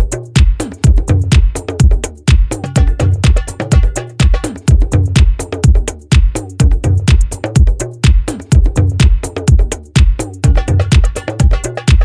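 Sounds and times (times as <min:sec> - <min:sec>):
kick drum beat: 0:00.0 - 0:12.0
electronic dance music: 0:02.3 - 0:05.3, 0:10.4 - 0:12.0.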